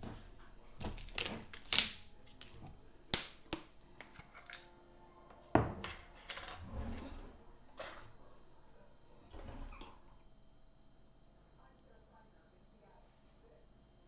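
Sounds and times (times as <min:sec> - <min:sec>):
items clicking and knocking on counter: 0:00.0 - 0:04.6.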